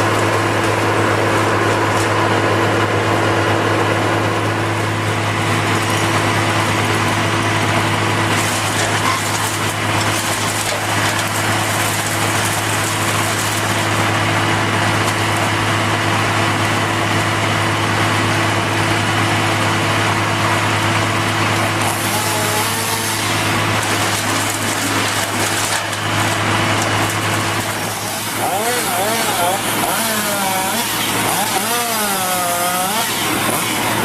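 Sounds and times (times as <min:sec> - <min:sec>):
engine running steadily: 0:00.0 - 0:34.0.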